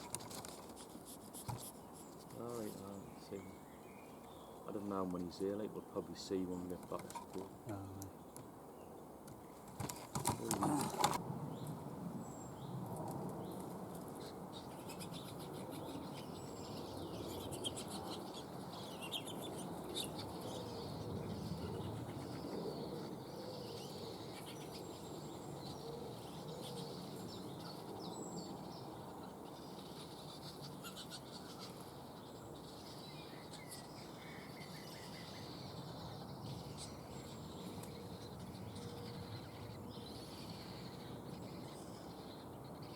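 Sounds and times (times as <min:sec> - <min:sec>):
bird chirps: 0:14.2 - 0:42.9.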